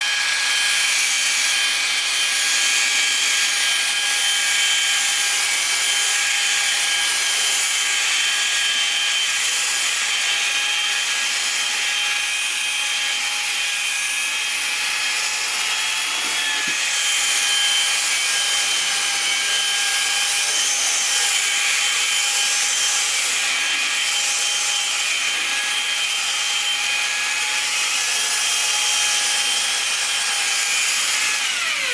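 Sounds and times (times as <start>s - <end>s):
electric brush motor whine: 0.0s - 31.9s
bristles scrubbing carpet: 16.0s - 17.0s.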